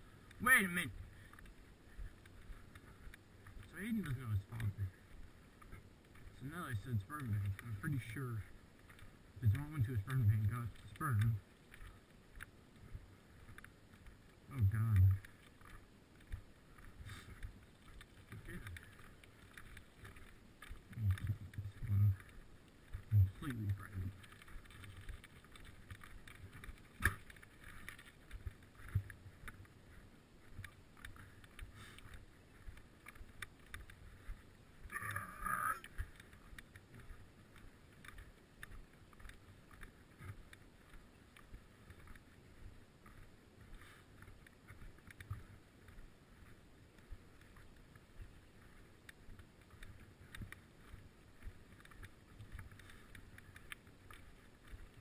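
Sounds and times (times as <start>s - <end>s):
wind while cycling: 0.0s - 55.0s
bicycle knocks and rattles: 24.2s - 29.1s.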